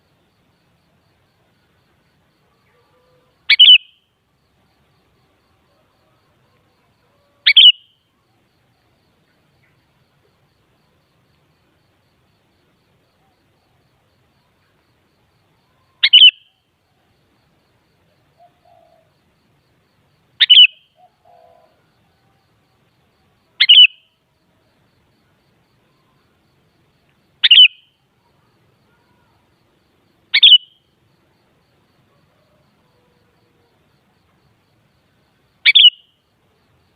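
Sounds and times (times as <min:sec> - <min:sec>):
bulbul calling: 0:02.7 - 0:04.1, 0:07.4 - 0:08.0, 0:15.9 - 0:16.6, 0:20.4 - 0:21.8, 0:23.6 - 0:24.1, 0:27.4 - 0:28.0, 0:30.3 - 0:30.8, 0:35.6 - 0:36.2.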